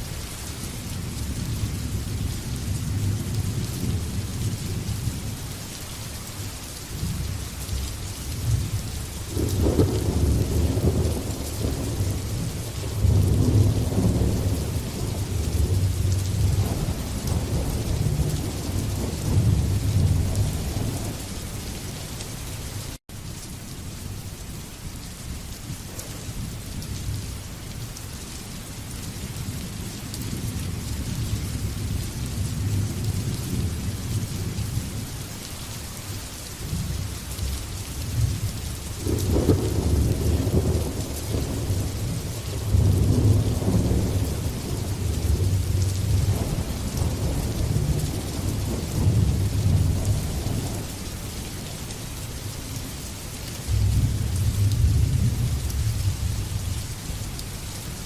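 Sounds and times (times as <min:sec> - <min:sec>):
steady rain: 0:00.0 - 0:58.0
rolling thunder: 0:09.3 - 0:21.3, 0:38.1 - 0:51.0, 0:53.6 - 0:56.8.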